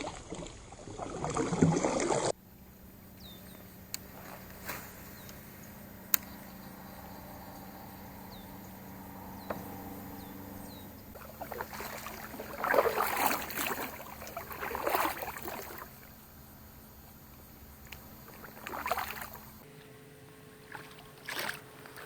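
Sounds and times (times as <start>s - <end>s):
water splashing at a kayak: 0.0s - 6.0s, 10.7s - 19.6s, 20.6s - 22.0s
faint steady hum: 0.0s - 22.0s.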